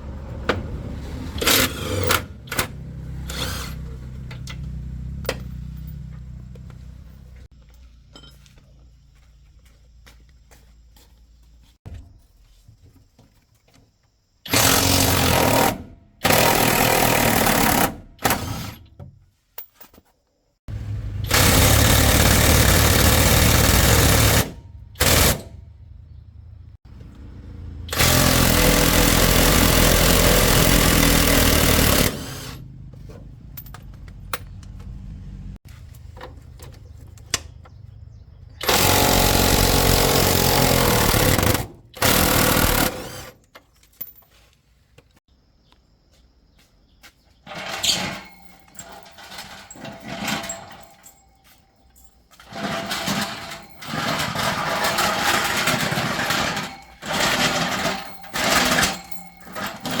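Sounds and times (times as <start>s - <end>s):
workshop handling clicks and knocks: 0.2s - 8.7s, 21.1s - 45.2s, 47.4s - 60.0s
handheld power tool running: 14.5s - 18.8s, 21.2s - 25.5s, 27.9s - 32.7s, 38.6s - 43.4s.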